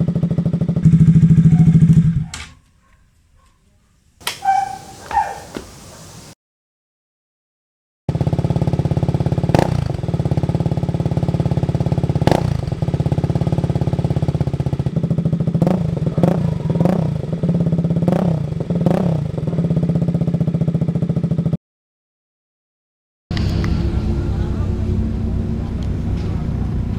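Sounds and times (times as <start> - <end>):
motorcycle engine idling: 0.0 - 2.8, 4.4 - 6.3, 8.1 - 21.6.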